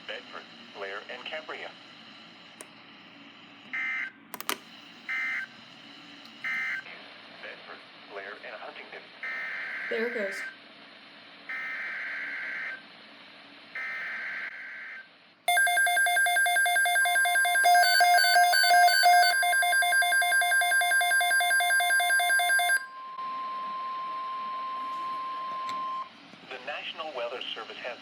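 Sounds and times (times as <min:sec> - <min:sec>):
pulsing electronic alarm: 0:05.1 - 0:05.5, 0:06.4 - 0:06.8, 0:09.2 - 0:10.6, 0:11.5 - 0:12.8, 0:13.7 - 0:26.1
steady warning tone: 0:15.5 - 0:26.1.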